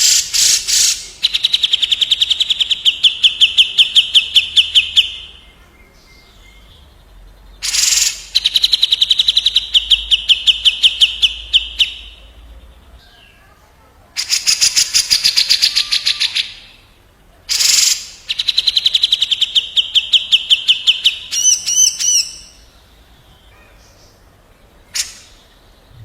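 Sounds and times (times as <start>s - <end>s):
birds calling in fast trills: 7.6s - 12.1s.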